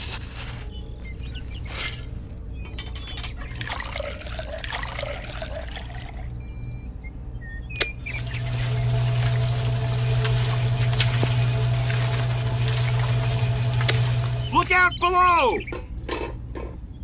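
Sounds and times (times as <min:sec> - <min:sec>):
liquid pouring and splashing: 0:03.4 - 0:06.3, 0:08.0 - 0:14.7
steady low hum: 0:07.8 - 0:14.7.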